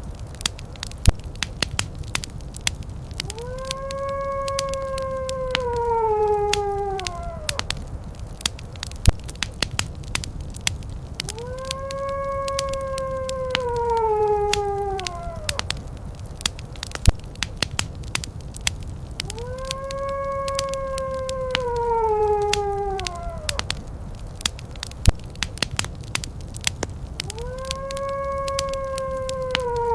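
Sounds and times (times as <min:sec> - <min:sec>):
wood fire crackling and popping: 0:00.0 - 0:29.9
animal howls: 0:03.1 - 0:08.5, 0:11.0 - 0:17.6, 0:18.6 - 0:26.3, 0:27.0 - 0:29.9.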